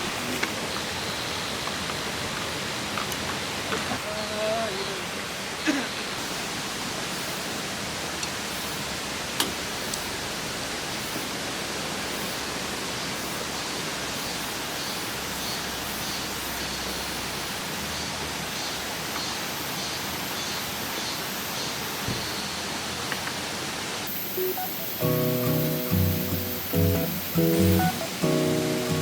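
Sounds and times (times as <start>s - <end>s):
stream rushing: 0.0s - 15.8s, 22.4s - 29.0s
faint high chirps: 24.2s - 29.0s.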